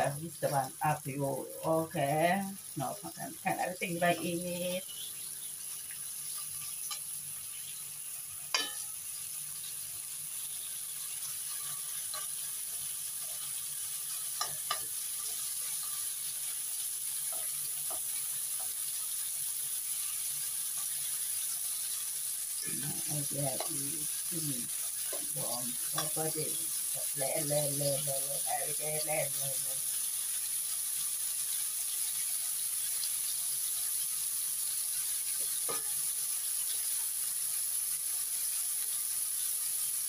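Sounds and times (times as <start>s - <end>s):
meat sizzling in hot oil: 0.0s - 40.0s
spatula clicking against pan: 8.5s - 8.9s, 14.3s - 15.0s.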